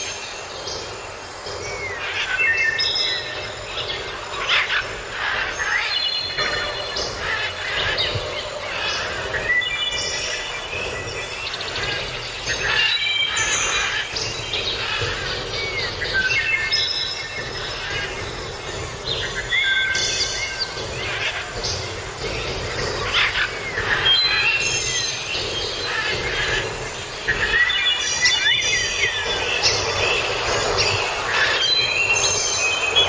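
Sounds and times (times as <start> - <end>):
birds chirping and calling: 0.0 - 33.0
steady background noise: 0.0 - 33.0.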